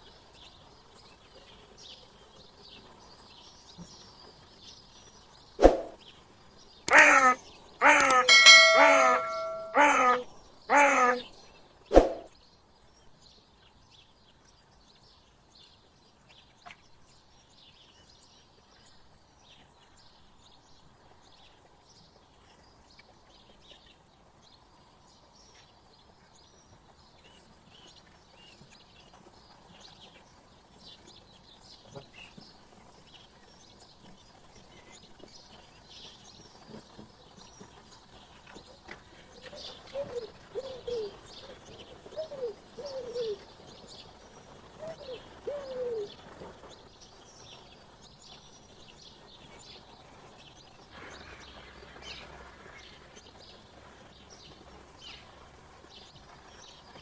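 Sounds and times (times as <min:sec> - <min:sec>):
dove cooing: 0:39.8 - 0:41.3, 0:42.1 - 0:43.4, 0:44.8 - 0:46.1.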